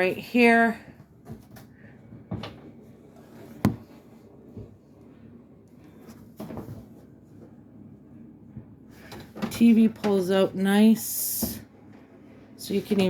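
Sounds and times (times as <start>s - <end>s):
soft knocks: 3.6s - 3.9s.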